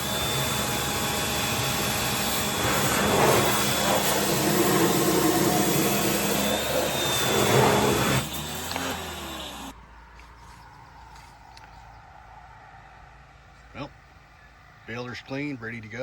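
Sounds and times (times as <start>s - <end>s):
motor humming: 0.0s - 9.7s
pressure washer water jet hissing: 0.0s - 9.7s.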